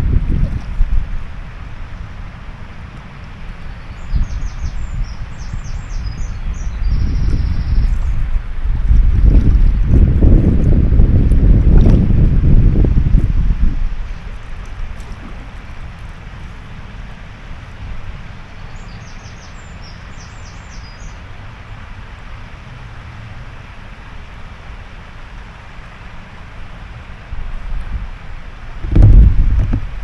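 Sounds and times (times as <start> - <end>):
wind buffeting microphone: 0.0 - 18.4, 27.2 - 30.0
rushing water: 0.0 - 30.0
bird chirping: 3.6 - 8.2.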